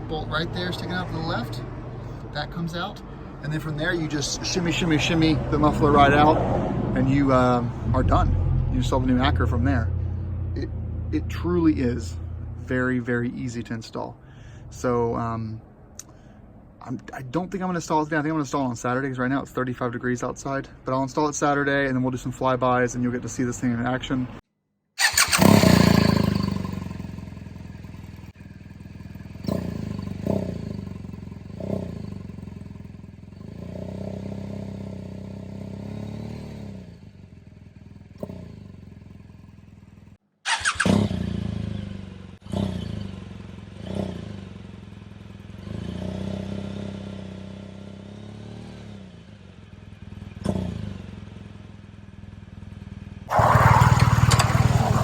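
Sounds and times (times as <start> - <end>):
motorcycle engine idling and revving: 0.0 - 17.0, 25.0 - 55.0.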